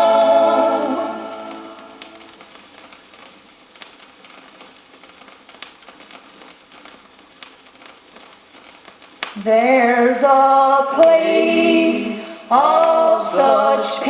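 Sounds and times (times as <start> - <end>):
sharp record click: 0.0 - 9.5
vinyl surface hiss and crackle: 0.0 - 14.0.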